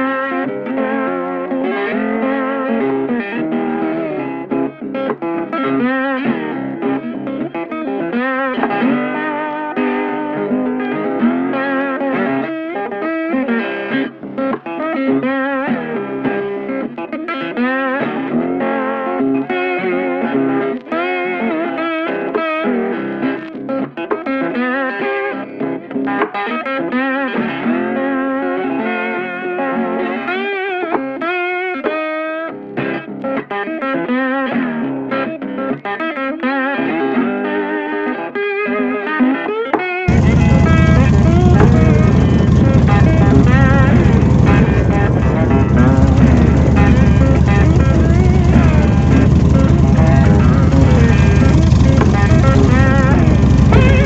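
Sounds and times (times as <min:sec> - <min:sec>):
electric guitar with effects: 0:00.0 - 0:54.0
steady backing music: 0:40.1 - 0:54.0.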